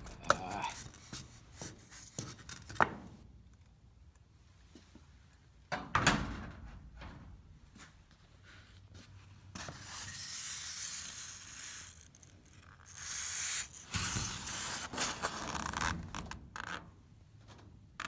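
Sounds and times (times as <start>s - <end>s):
adhesive rubbing and scraping: 9.6s - 16.7s.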